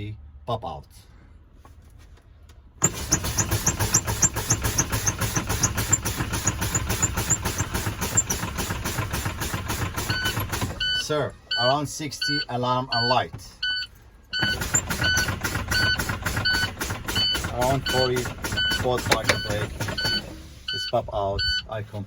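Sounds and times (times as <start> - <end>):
rapid pulsing of air brakes: 2.8 - 10.9, 14.4 - 20.8
warning buzzer beeping: 10.0 - 21.6.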